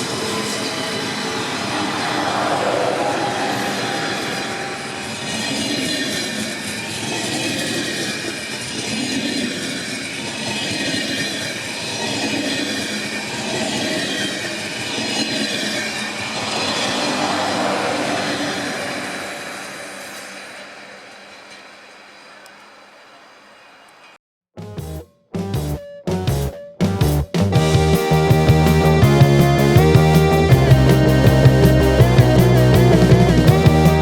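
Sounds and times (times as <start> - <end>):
train wheels rushing on track: 0.0 - 22.7
faint wheel squeal: 0.1 - 21.2.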